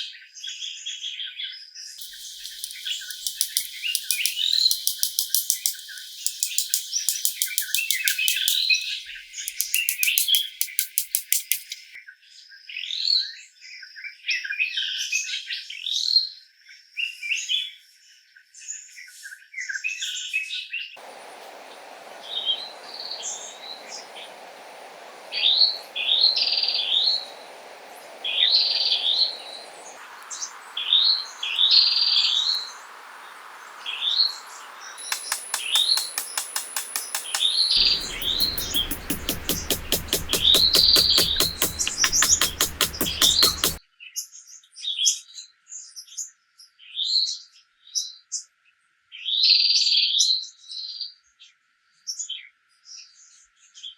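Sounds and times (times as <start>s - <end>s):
steady rushing noise: 2.0s - 8.6s, 21.0s - 43.8s
fast even ticking: 2.0s - 11.8s, 21.0s - 43.8s
wild birds chirping and singing: 21.0s - 43.8s.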